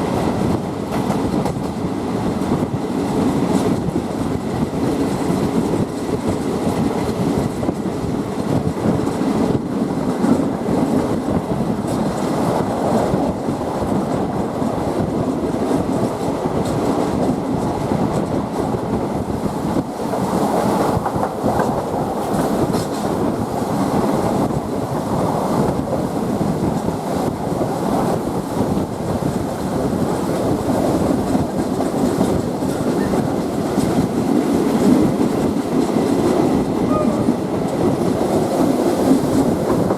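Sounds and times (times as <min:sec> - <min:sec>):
train running noise: 0:00.0 - 0:39.9
wheels clicking over rail joints: 0:00.2 - 0:39.9.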